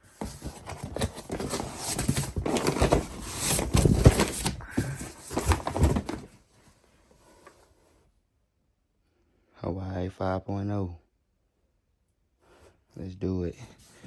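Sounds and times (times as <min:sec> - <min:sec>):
packages rustling and clattering: 0:00.0 - 0:06.5.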